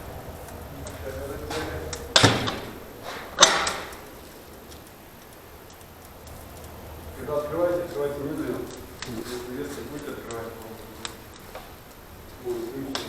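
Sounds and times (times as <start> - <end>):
sharp knocks with ringing tail: 1.5 - 4.1.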